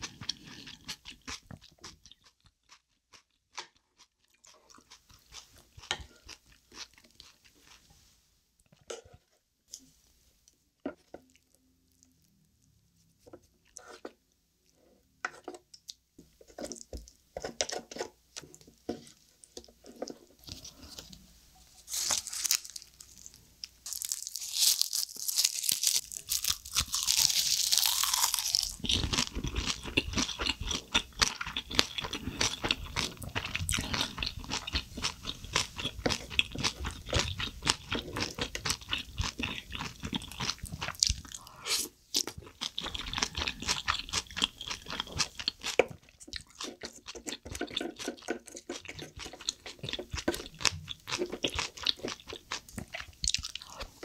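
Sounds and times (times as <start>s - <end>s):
rapid crunching and chewing: 0.0s - 7.8s, 21.9s - 54.0s
wet eating sounds: 25.8s - 54.0s.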